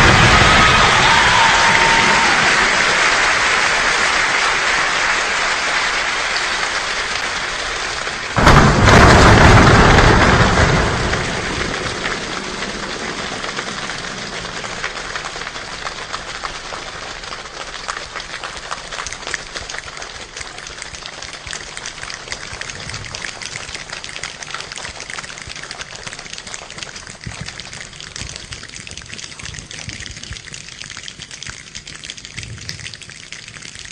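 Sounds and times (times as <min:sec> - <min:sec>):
thunder crack and rumble: 0:00.0 - 0:03.2, 0:08.3 - 0:16.4
steady rain: 0:00.0 - 0:33.9
raindrops ticking: 0:05.7 - 0:33.9.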